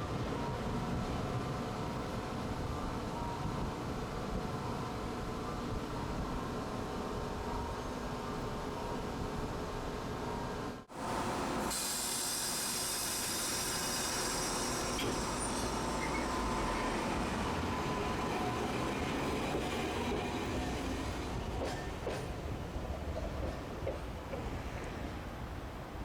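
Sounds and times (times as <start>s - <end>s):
streetcar rumbling on rails: 0.0s - 26.0s
high hiss: 11.6s - 17.3s.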